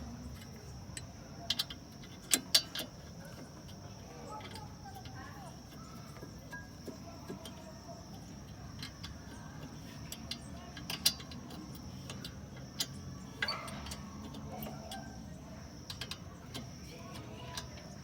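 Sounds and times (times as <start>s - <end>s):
metallic clicks of hand tools: 8.4s - 15.2s.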